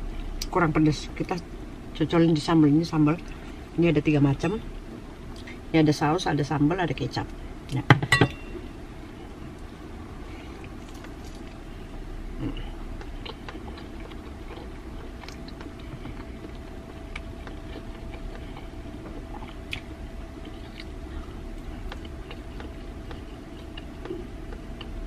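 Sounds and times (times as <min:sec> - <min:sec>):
steady low hum: 0:00.0 - 0:25.0
person chewing: 0:12.3 - 0:25.0.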